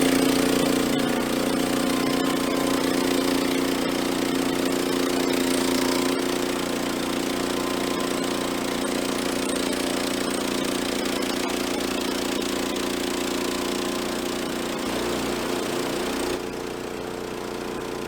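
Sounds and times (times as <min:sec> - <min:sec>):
sawmill engine running: 0:00.0 - 0:18.0.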